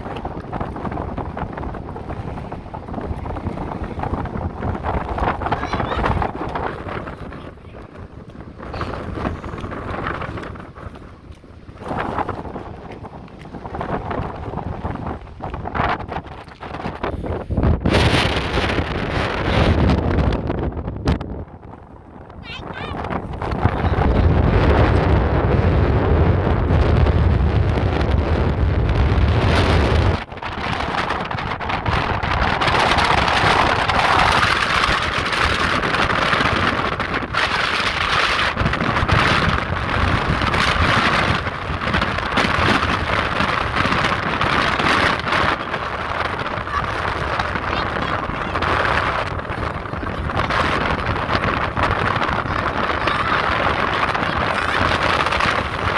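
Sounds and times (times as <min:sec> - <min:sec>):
rushing hiss of wind: 0:00.0 - 0:55.9
wind buffeting microphone: 0:00.0 - 0:55.9.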